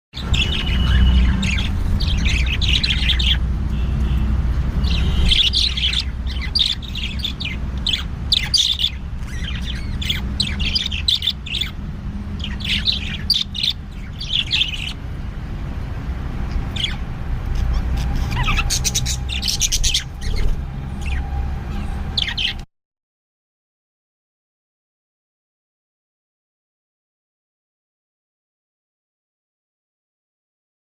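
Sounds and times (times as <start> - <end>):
birds chirping and squawking: 0.2 - 22.7.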